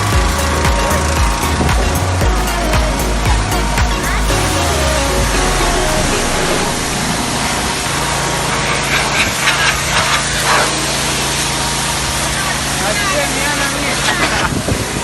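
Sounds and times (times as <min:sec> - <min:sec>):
low motor hum: 0:00.0 - 0:10.5.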